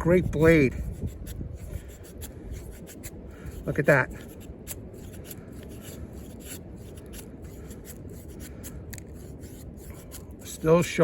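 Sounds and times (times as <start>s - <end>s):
faint ticks and scrapes: 0.0s - 11.0s
wind rumble on microphone: 0.0s - 11.0s.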